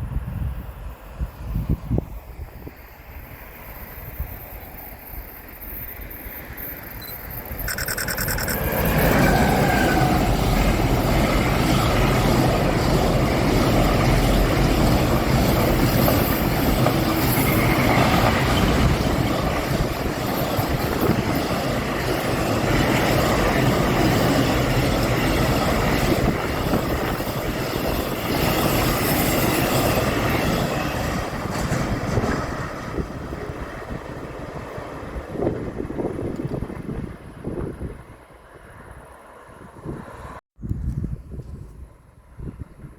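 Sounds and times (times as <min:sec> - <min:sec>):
train passing on rails: 0:00.0 - 0:40.4
brief high tone: 0:07.0 - 0:08.9.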